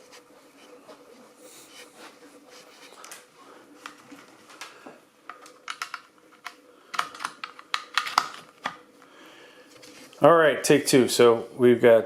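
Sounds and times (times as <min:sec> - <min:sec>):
plastic parts clicking and rattling: 0:03.8 - 0:08.8.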